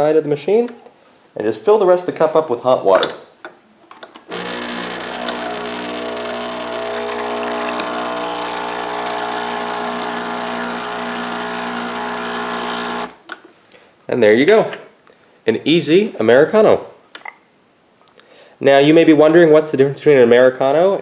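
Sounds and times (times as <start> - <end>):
espresso machine pump humming: 4.3 - 13.2
hot water hissing: 4.3 - 13.2.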